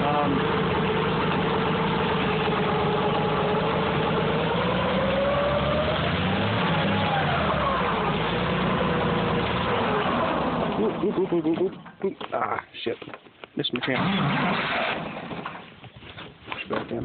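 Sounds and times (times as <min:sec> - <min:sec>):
tractor engine running: 0:00.0 - 0:12.2.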